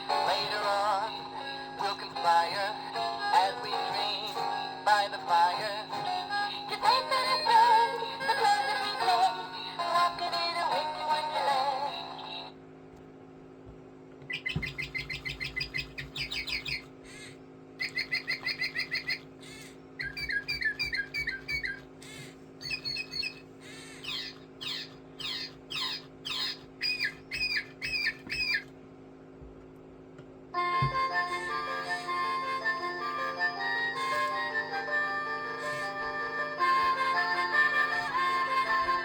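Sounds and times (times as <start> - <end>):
steady low hum: 0.0 - 39.0
bird toy chirping and whistling: 14.3 - 16.9, 17.8 - 21.9, 22.6 - 23.4, 24.0 - 28.7.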